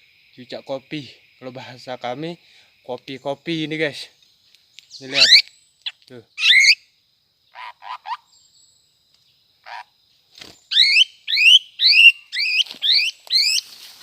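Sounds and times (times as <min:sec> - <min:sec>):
short rustles: 0:13.6 - 0:14.0.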